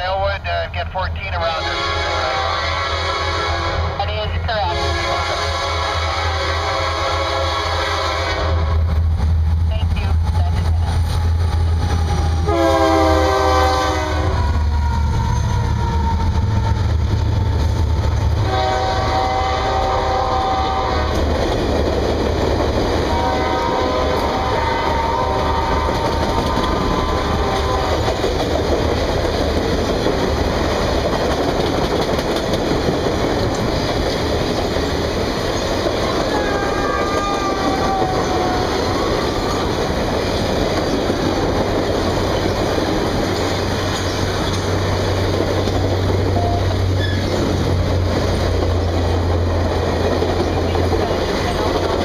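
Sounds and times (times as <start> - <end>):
locomotive engine rumble: 0.0 - 52.0
train air horn blasts: 1.5 - 4.0, 4.7 - 8.9, 12.1 - 14.6, 18.4 - 21.2, 23.1 - 28.2, 36.3 - 39.6
train wheels rolling on rails: 4.8 - 52.0.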